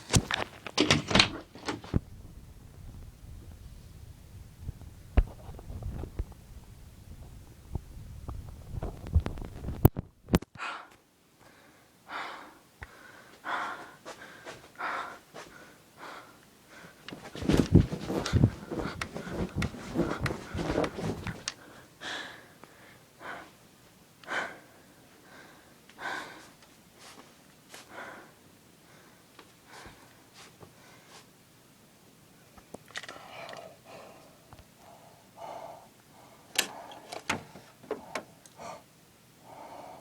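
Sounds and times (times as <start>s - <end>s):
person breathing heavily: 10.6s - 23.6s, 24.2s - 26.6s, 27.8s - 30.1s, 33.1s - 40.0s.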